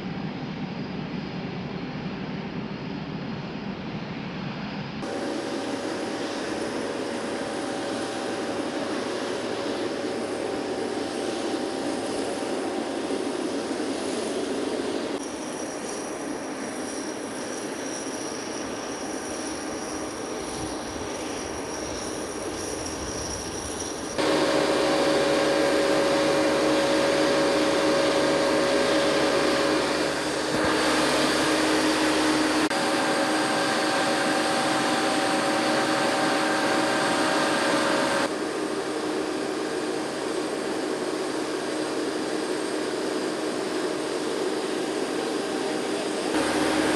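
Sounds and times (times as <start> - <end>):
jet engines droning: 0.0 - 46.9.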